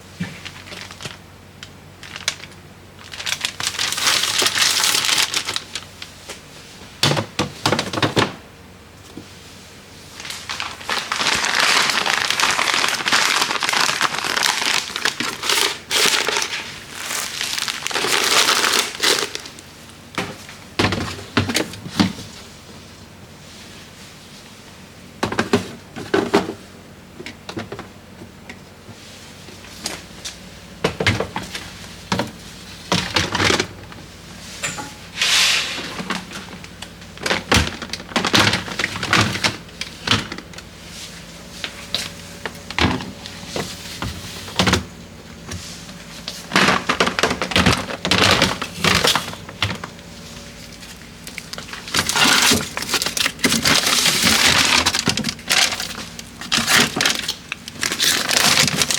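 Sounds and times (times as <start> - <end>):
food packages rustling: 0.2 - 6.4, 10.1 - 22.5, 31.2 - 58.9.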